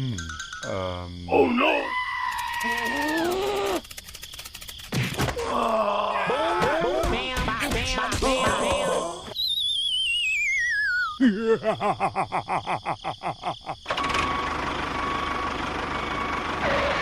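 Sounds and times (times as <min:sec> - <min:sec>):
warbling whistle sliding down: 0:09.4 - 0:11.2.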